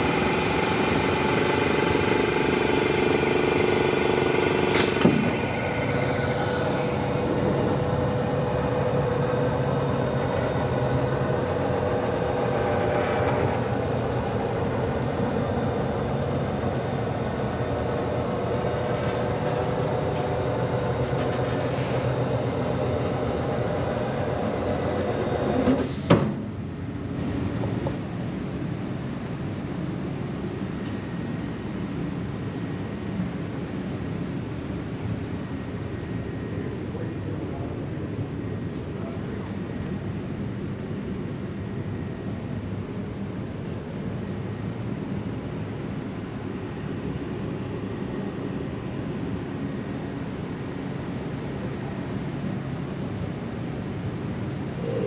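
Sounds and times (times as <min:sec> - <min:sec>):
machine humming: 0:00.0 - 0:25.8, 0:54.7 - 0:55.0.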